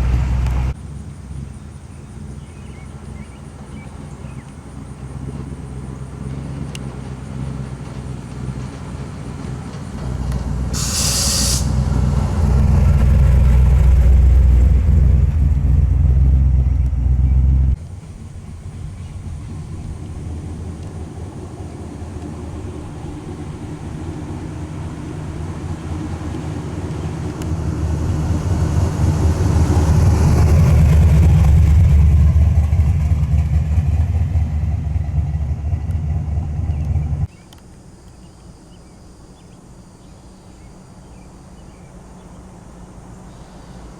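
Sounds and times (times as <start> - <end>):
car engines rumbling: 0.0 - 37.4
short hiss: 10.7 - 11.9.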